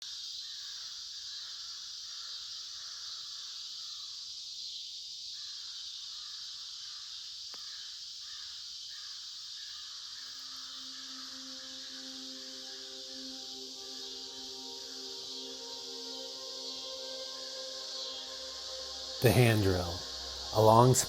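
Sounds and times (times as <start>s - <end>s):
high outdoor hiss: 0.0s - 21.0s
crows cawing: 1.4s - 3.3s
faint background music: 10.4s - 21.0s.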